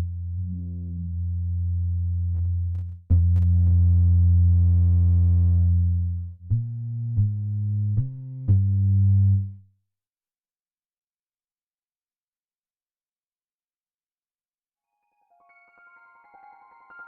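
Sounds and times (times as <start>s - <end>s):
synthesizer bass notes: 0.0s - 9.6s.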